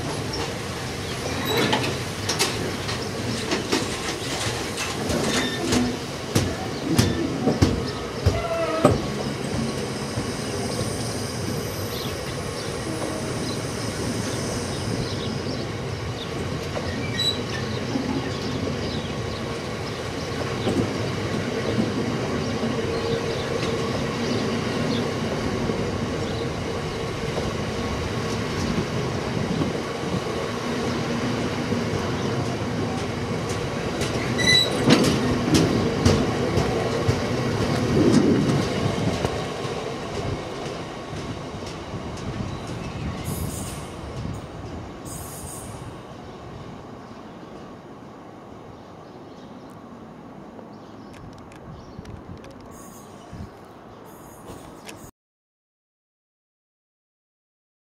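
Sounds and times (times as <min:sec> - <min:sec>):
wheels clattering over rail joints: 0:00.0 - 0:09.7, 0:32.0 - 0:43.1
train wheels rumbling on rails: 0:00.0 - 0:46.8.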